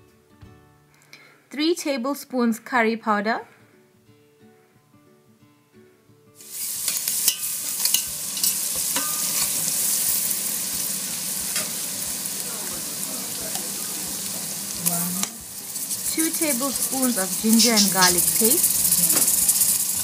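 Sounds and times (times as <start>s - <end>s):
vegetables sizzling in hot oil: 6.4s - 20.0s
spoon stirring and clicking on pot: 6.9s - 9.6s, 15.2s - 19.8s.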